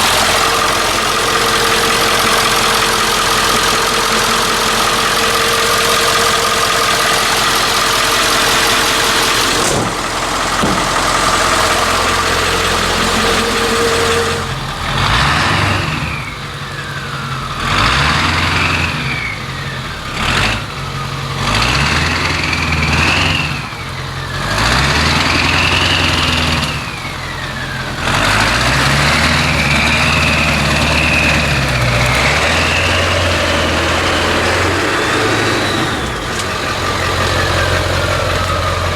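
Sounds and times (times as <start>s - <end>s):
diesel engine running and revving: 0.0s - 38.9s
turbo whistle: 11.4s - 14.6s.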